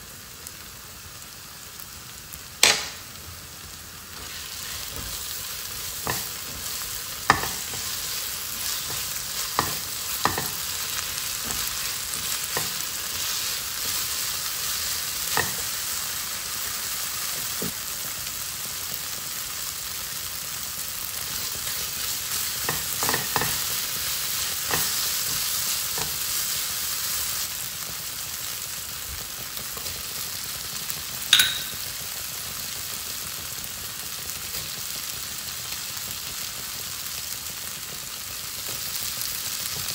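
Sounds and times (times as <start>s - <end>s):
vegetables sizzling in oil: 0.0s - 39.9s
spatula scraping and tapping pan: 5.9s - 14.0s, 15.3s - 15.8s, 22.5s - 23.8s, 24.6s - 26.2s
sharp clink: 31.3s - 31.9s.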